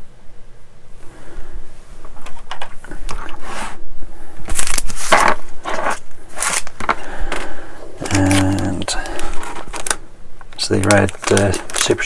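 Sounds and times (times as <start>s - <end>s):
plastic bags crinkling: 4.4s - 12.0s.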